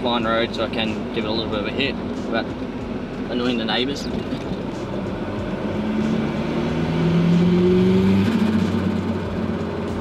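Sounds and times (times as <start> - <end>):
turbocharged engine accelerating: 2.1 - 10.0.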